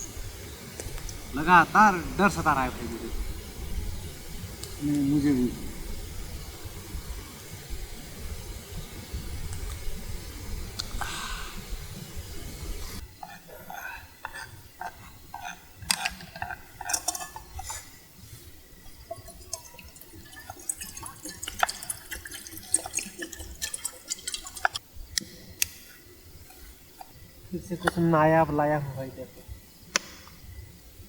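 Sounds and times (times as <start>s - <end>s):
water gurgling and splashing: 18.8s - 24.8s.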